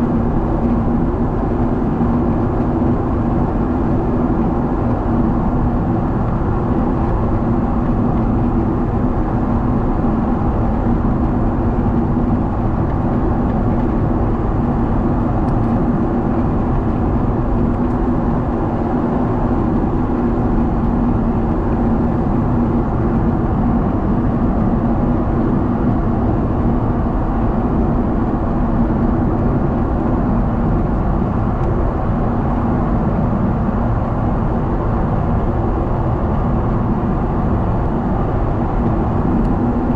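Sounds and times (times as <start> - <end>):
airplane cabin roar: 0.0 - 39.9.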